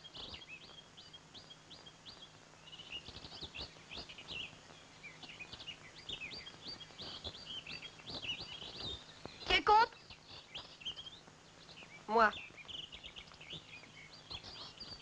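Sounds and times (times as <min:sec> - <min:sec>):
faint low hum: 0:00.0 - 0:15.0
songbirds chirping: 0:00.0 - 0:15.0.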